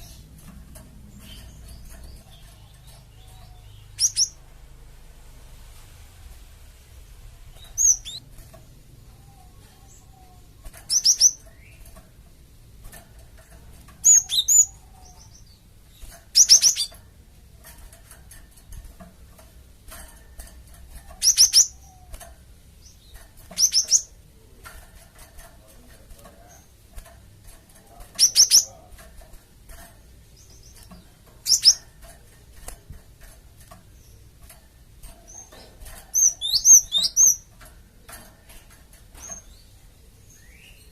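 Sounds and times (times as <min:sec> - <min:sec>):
bird high sharp chirps: 0:01.2 - 0:04.4, 0:07.5 - 0:08.3, 0:09.3 - 0:11.8, 0:14.0 - 0:17.0, 0:21.2 - 0:22.2, 0:31.4 - 0:31.9, 0:35.3 - 0:37.4.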